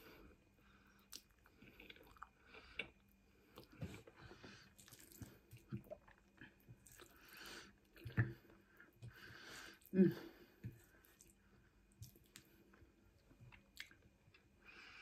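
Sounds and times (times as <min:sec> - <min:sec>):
person chewing noodles: 0:00.9 - 0:14.5.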